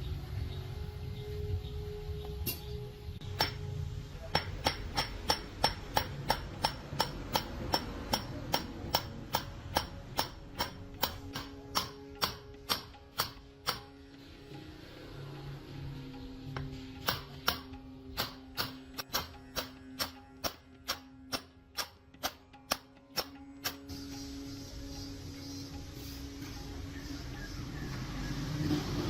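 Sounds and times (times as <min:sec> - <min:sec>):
sharp evenly spaced knocks: 0:03.2 - 0:14.3, 0:16.5 - 0:24.2.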